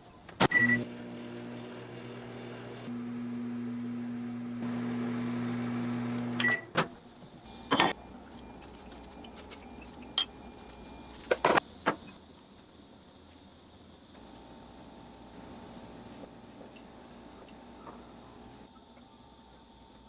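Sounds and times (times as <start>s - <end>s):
microwave oven humming: 0.4s - 6.8s, 14.2s - 18.7s
microwave beep: 0.5s - 1.4s, 6.2s - 6.8s, 7.5s - 11.4s.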